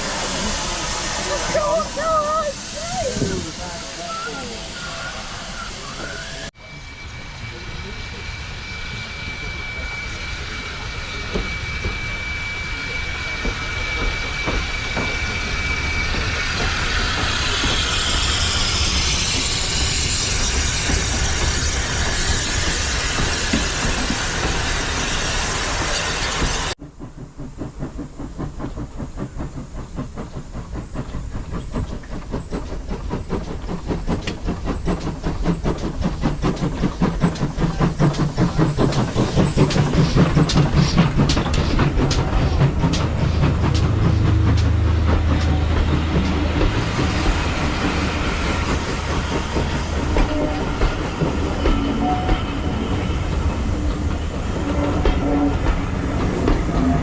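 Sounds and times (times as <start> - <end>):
steady hissing: 0.0 - 6.5
steam train chuffing: 0.0 - 57.0
rail clatter: 13.3 - 57.0.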